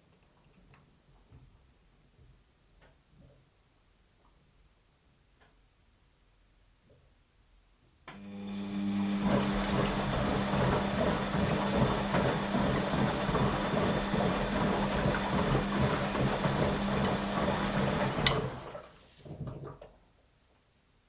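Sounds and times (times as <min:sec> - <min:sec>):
washing machine motor hum: 0:08.1 - 0:19.9
washing machine churning: 0:08.2 - 0:20.0.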